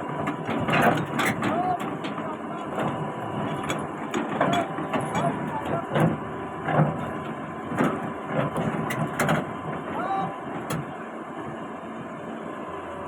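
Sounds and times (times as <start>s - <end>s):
heavy machinery running: 0.0s - 13.0s.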